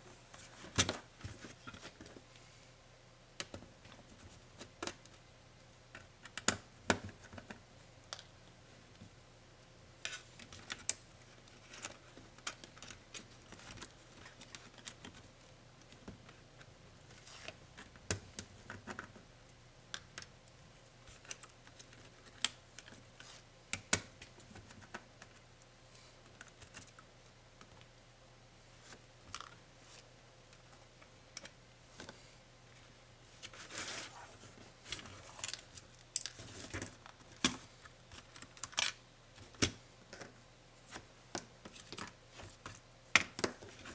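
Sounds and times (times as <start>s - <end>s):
faint steady hum: 0.0s - 43.9s
clicks and taps of laptop parts: 5.9s - 8.2s.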